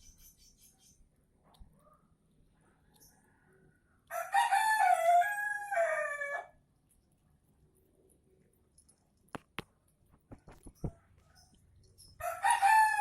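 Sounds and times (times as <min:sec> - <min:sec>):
rooster crowing: 0:03.4 - 0:06.6, 0:12.2 - 0:13.0.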